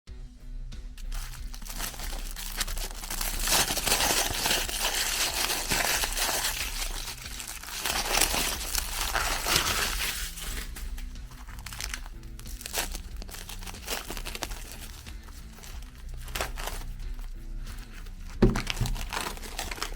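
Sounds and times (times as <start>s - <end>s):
meat grinder crunching cookies: 1.0s - 10.0s.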